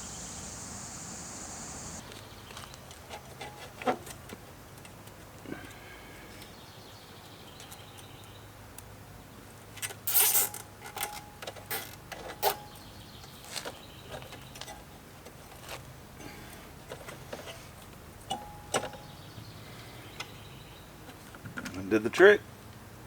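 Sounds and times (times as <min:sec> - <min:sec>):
rattling scraping clicks of parts: 0:09.8 - 0:12.6, 0:16.8 - 0:19.0.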